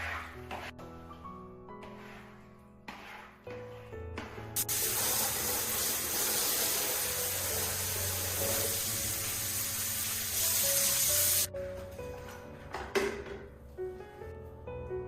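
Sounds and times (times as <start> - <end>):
background music: 0.0 - 15.0
water running: 4.6 - 11.5.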